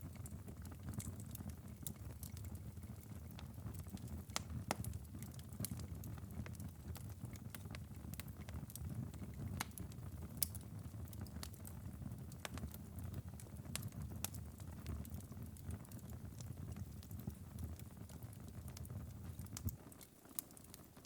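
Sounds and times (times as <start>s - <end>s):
embers crackling and popping: 0.0s - 21.0s.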